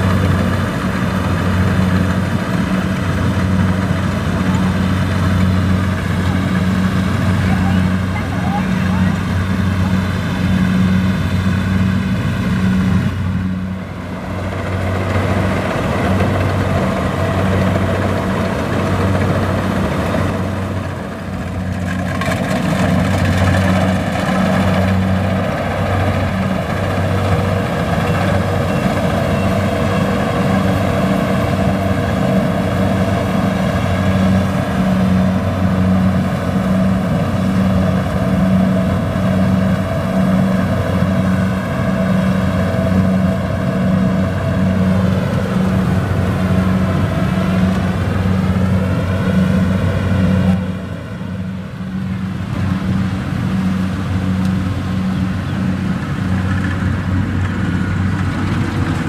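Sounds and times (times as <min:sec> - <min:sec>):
diesel engine under load: 0:00.0 - 0:59.0
machinery clatter: 0:13.8 - 0:51.0.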